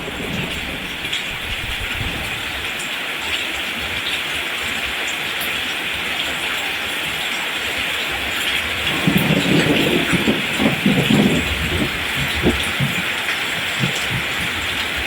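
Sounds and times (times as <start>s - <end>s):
rolling thunder rumble: 0.0s - 2.9s, 8.5s - 15.0s
steady rain falling: 0.0s - 15.0s.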